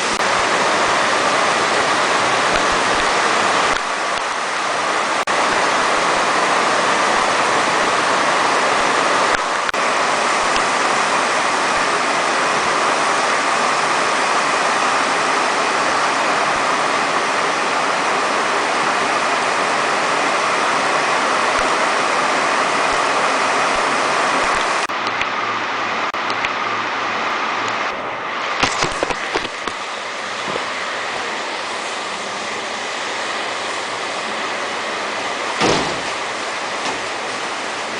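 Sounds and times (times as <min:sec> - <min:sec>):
heavy rain rushing: 0:00.0 - 0:37.9
sharp knocks: 0:35.6 - 0:36.2.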